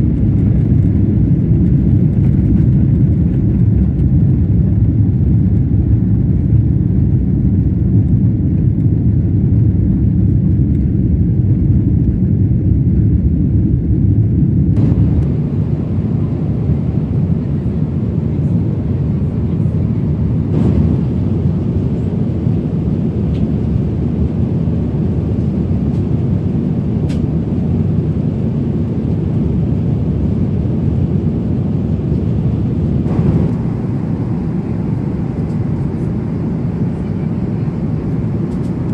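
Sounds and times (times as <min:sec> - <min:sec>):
jet engine rumble in cabin: 0:00.0 - 0:38.9.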